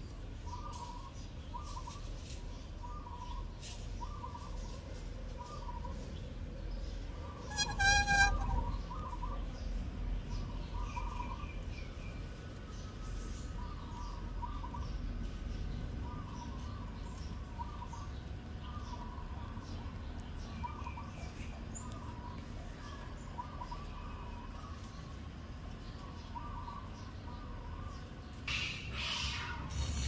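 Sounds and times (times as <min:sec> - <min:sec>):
bird chirping: 0:06.8 - 0:09.7
high-pitched bird call: 0:07.4 - 0:09.3.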